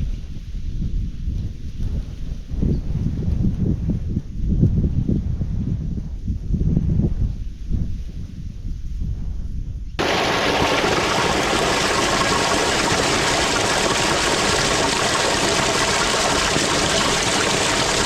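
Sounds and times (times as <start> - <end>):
wind rumble on microphone: 0.0 - 18.0
small stream flowing: 10.0 - 18.0.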